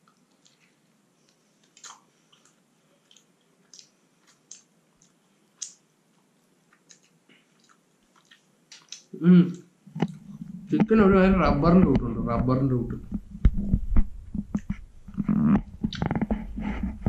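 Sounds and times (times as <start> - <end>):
lip smacks and mouth clicks: 0.0 - 10.6, 14.3 - 16.3
man chewing: 0.0 - 10.8.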